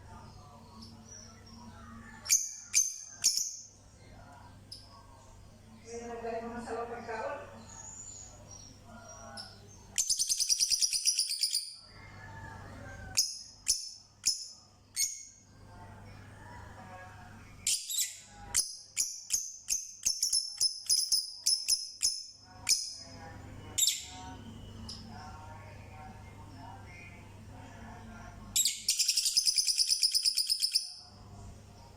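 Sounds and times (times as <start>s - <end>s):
small birds chirping and trilling: 0.0s - 31.9s.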